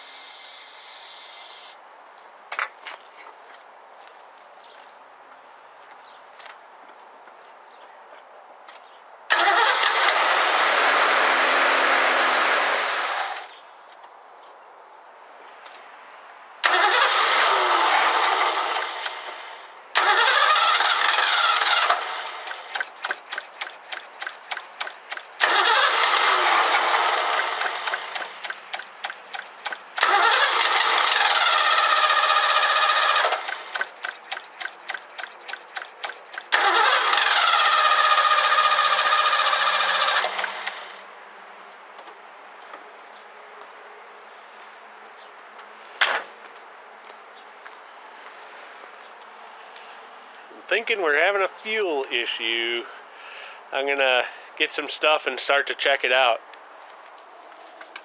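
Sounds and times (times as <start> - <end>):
car engine catching and dying: 9.3 - 11.9, 16.6 - 41.0.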